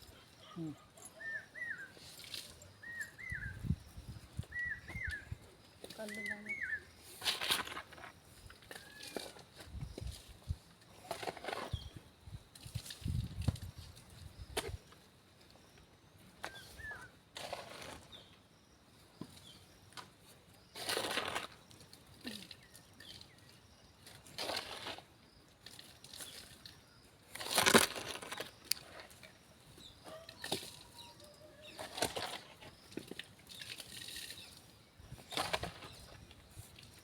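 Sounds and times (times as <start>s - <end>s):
shovel scraping soil: 7.1s - 10.3s, 10.9s - 11.9s, 16.4s - 18.3s, 20.6s - 21.8s, 24.1s - 26.4s, 27.3s - 29.2s, 31.6s - 32.9s, 33.7s - 37.0s
soil and stones clicking: 20.8s - 29.4s, 30.2s - 37.0s.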